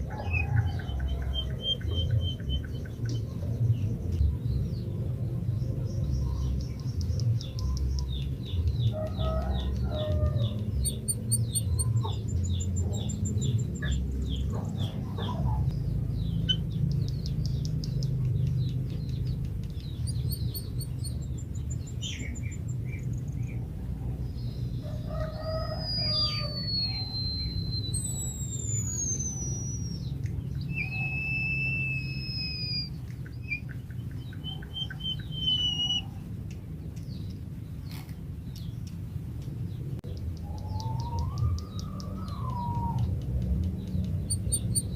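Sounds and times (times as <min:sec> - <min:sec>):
steady low rumble: 0:00.0 - 0:44.9
bird singing chirps and whistles: 0:00.2 - 0:04.0, 0:05.9 - 0:15.0, 0:16.2 - 0:23.6, 0:25.2 - 0:36.2, 0:40.1 - 0:44.9
lower bird calls: 0:05.8 - 0:23.7, 0:24.5 - 0:36.3, 0:40.1 - 0:44.9.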